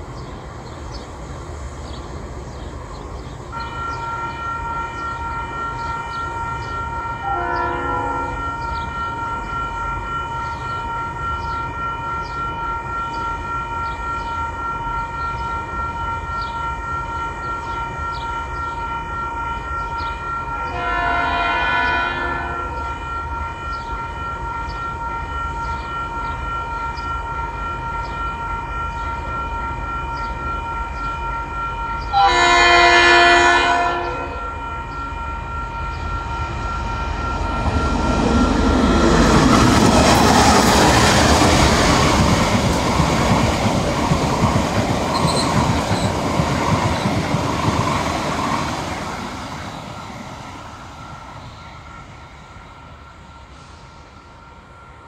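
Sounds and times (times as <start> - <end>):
train passing at speed: 0.0 - 55.0
level-crossing warning bells: 2.6 - 55.0
locomotive horn blast: 3.5 - 42.2.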